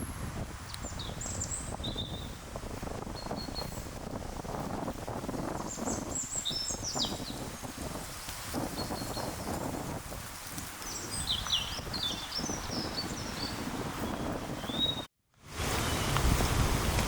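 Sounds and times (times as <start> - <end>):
small birds chirping: 0.0 - 15.1, 15.7 - 16.4
low rustling outdoor rumble: 15.5 - 17.0.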